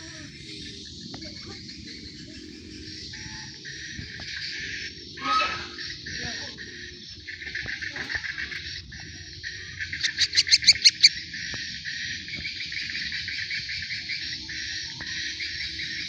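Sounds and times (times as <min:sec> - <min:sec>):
young birds chirping: 0:00.0 - 0:16.0
loud sharp chirps: 0:10.0 - 0:11.2.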